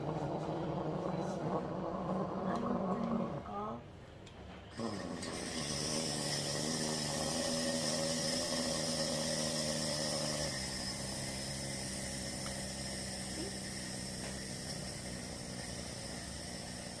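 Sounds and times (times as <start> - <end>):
espresso machine hiss: 4.7 - 17.0
espresso machine humming: 4.7 - 17.0.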